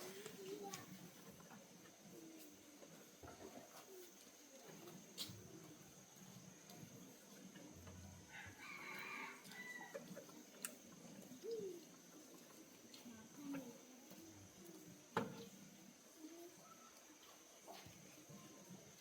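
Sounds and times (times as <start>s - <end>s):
faint rooster crow: 8.2s - 10.2s.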